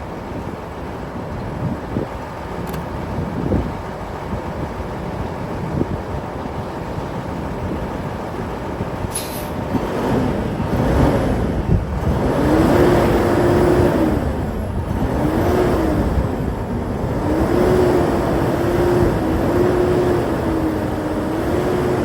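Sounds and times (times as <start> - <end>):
diesel truck engine revving: 7.5 - 22.0.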